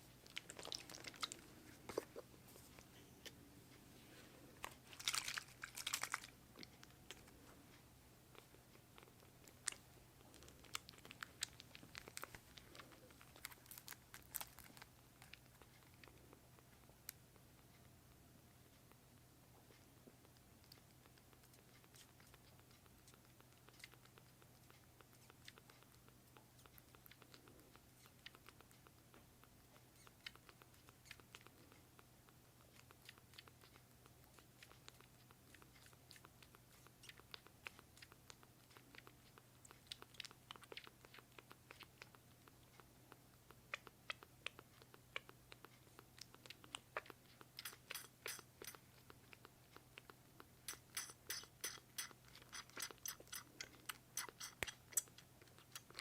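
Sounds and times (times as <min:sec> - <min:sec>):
kitten mouth clicking and smacking: 0:00.1 - 0:03.8, 0:04.6 - 0:56.0.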